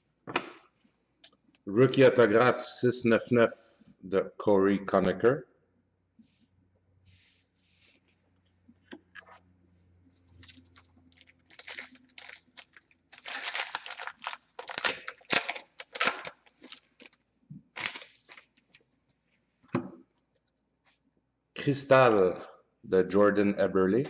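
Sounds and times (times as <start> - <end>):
wrapper tearing and crinkling: 10.4 - 18.8.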